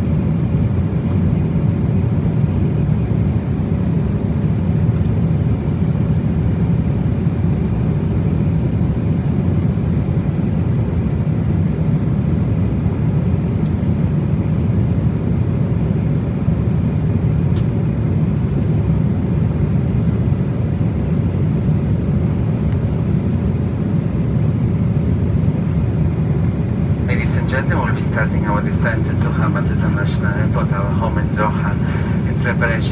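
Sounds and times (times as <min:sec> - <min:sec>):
aircraft cabin roar: 0:00.0 - 0:32.9
faint steady hum: 0:21.9 - 0:32.9.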